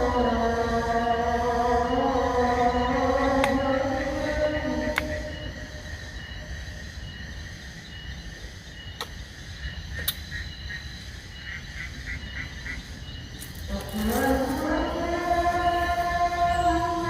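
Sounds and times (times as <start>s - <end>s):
faint insect tones: 0.0s - 17.0s
sharp clicks: 9.0s - 9.2s, 10.0s - 10.3s.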